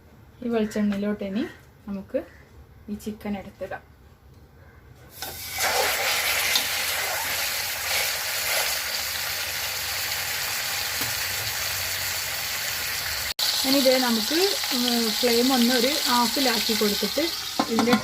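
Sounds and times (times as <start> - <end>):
chicken sizzling in hot oil: 5.2 - 18.0.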